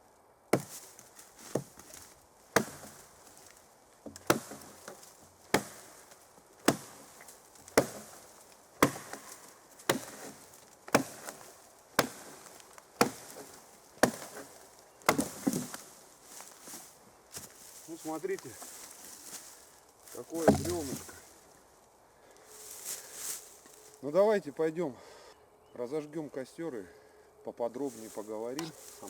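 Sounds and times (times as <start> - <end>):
axe chopping log: 0.6 - 3.1, 4.0 - 14.5, 15.1 - 15.8, 20.3 - 21.2.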